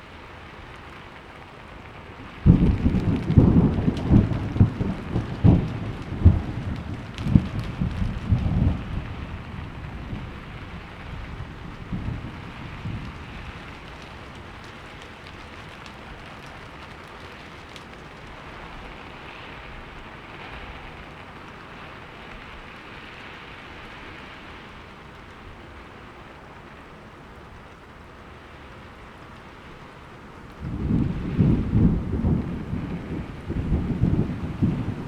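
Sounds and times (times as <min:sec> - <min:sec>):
heavy rain: 0:00.0 - 0:35.0
rain drop clicks: 0:00.0 - 0:35.0
low thunder rumble: 0:02.1 - 0:21.1, 0:30.5 - 0:35.0.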